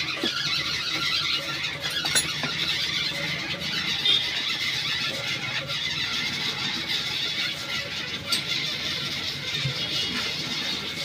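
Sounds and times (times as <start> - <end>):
grinding wheel on steel rod: 0.0 - 3.9, 6.3 - 9.0.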